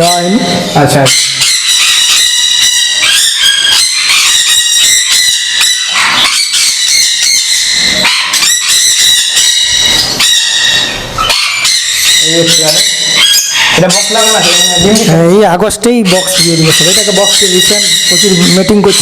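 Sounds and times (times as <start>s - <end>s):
parrots screeching and squawking: 0.0s - 19.0s.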